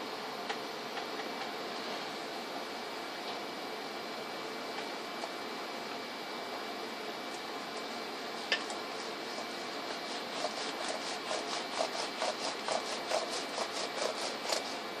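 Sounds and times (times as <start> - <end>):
scraping strokes: 9.0 - 14.8.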